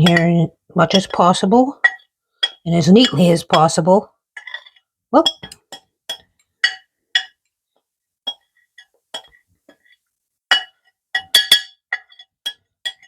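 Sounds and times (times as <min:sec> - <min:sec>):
utensil clinking on glass jar: 0:04.4 - 0:07.4, 0:08.3 - 0:13.0.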